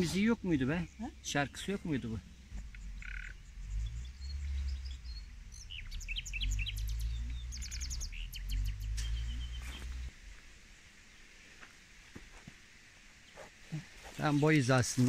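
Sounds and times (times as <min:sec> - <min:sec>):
low rumble: 0:00.0 - 0:10.7
small birds chirping: 0:00.0 - 0:15.0.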